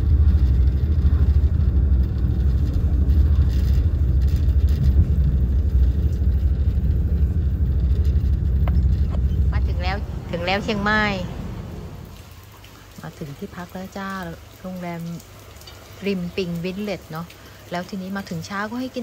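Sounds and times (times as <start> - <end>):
train rumbling inside carriage: 0.0 - 12.3.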